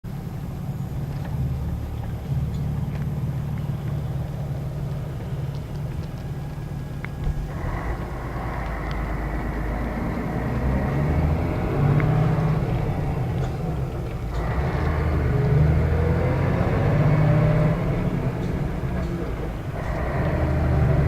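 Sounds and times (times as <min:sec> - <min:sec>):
bus diesel engine droning: 0:00.0 - 0:21.0
small rattles and clicks: 0:00.9 - 0:09.8.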